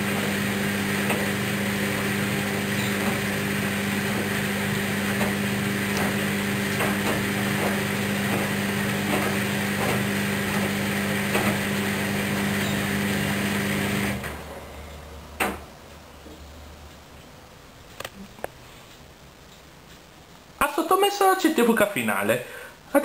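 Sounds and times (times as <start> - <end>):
washing machine motor humming: 0.0 - 16.1.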